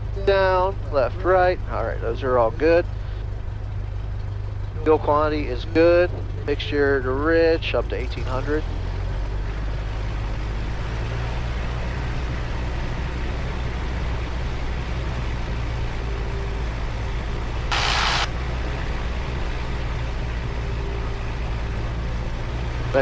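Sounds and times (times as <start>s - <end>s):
piston aircraft engine running: 0.0s - 10.9s, 11.5s - 22.2s
burst of hiss: 17.7s - 18.3s.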